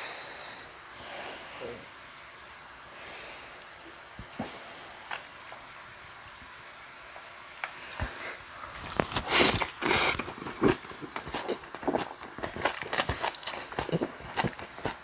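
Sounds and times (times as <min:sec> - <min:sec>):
man chewing with wet smacking: 0:03.6 - 0:06.4, 0:07.5 - 0:15.0.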